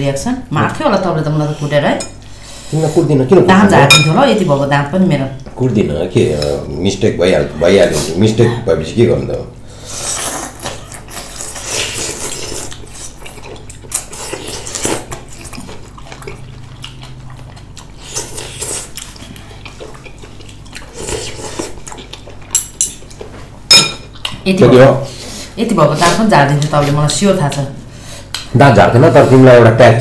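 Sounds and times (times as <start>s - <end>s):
wet eating sounds: 9.9s - 24.5s
cutlery clinking on dishes: 23.7s - 24.1s.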